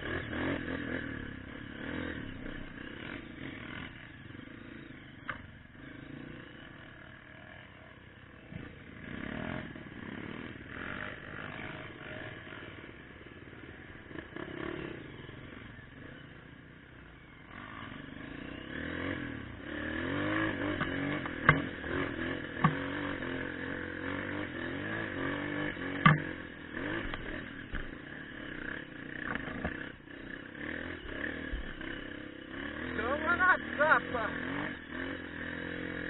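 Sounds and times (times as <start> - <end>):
motorcycle engine revving: 0.0 - 36.0
sharp knocks: 26.0 - 26.4.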